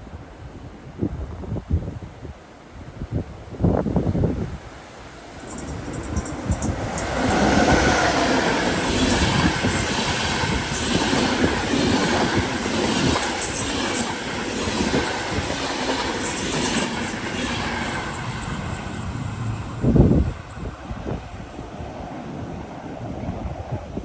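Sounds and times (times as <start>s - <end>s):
train rumbling past: 4.7s - 23.6s
wheels clicking on track: 5.2s - 20.8s.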